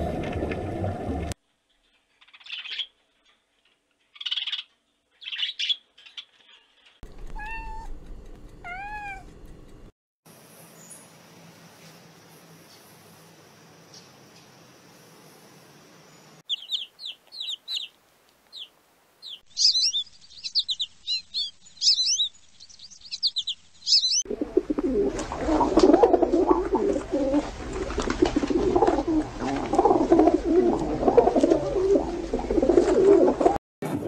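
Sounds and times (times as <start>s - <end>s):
high bird chirps: 16.4s - 17.9s, 18.5s - 24.2s
pigeons cooing: 24.3s - 33.6s.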